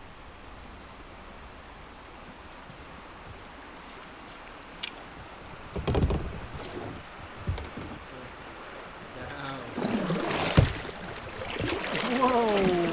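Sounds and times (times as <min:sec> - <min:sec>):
water lapping against kayak: 0:05.3 - 0:12.9
knocks against kayak hull: 0:05.7 - 0:08.0, 0:10.4 - 0:10.8.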